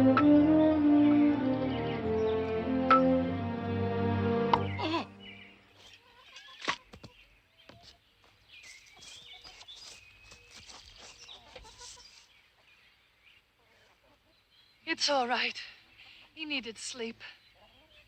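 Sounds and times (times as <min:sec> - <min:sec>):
music cue: 0:00.0 - 0:05.6
chickens calling: 0:00.0 - 0:12.8, 0:17.4 - 0:18.0.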